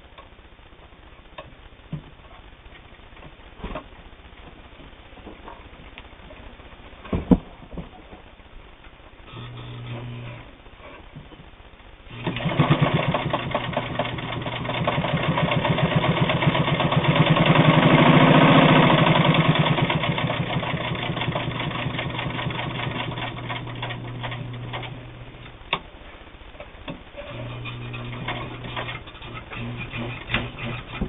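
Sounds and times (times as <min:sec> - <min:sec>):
sewing machine stitching: 0:12.1 - 0:25.0, 0:27.2 - 0:31.0.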